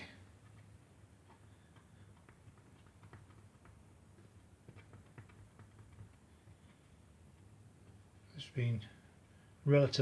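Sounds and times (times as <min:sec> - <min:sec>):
low steady hum: 0:00.0 - 0:10.0
faint light clicks and ticks: 0:00.4 - 0:08.0.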